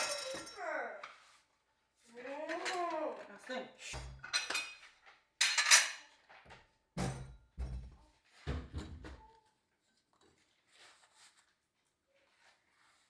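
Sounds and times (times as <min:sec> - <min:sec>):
dishes and cutlery clattering: 0:00.0 - 0:00.6, 0:02.5 - 0:03.3, 0:03.9 - 0:06.2, 0:08.5 - 0:09.3.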